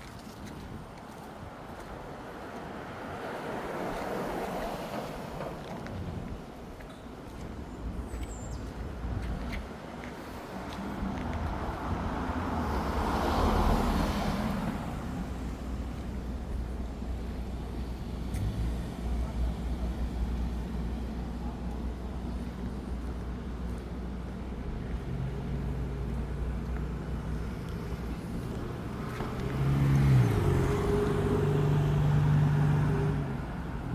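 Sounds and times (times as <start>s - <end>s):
traffic rumble: 0.0s - 33.9s
vehicle engine passing: 10.6s - 21.1s, 24.6s - 33.9s.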